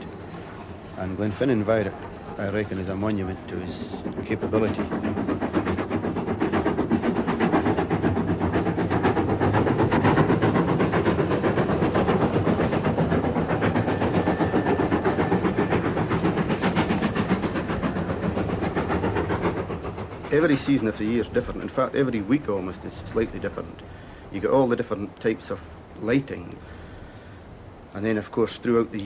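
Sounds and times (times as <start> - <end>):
train running at speed: 0.0 - 29.0.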